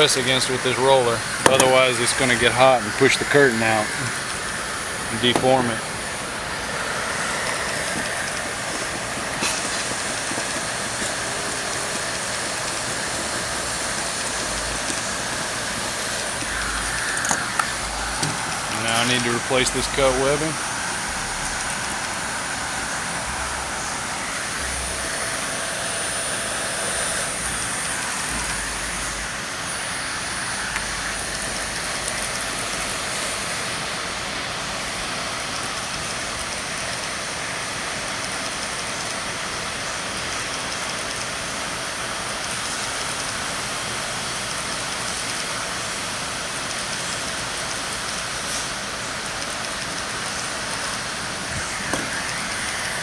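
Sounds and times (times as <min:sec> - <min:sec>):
heat gun blowing hiss: 0:00.0 - 0:33.8.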